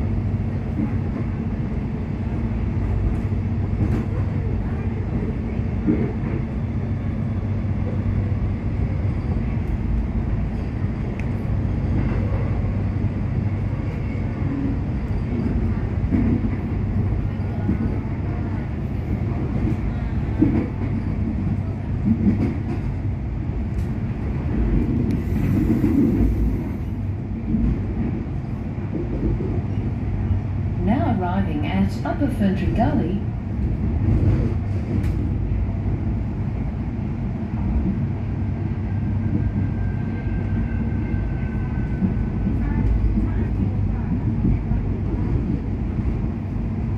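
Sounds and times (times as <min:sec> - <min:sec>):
train carriage rumble and hum: 0:00.0 - 0:46.9.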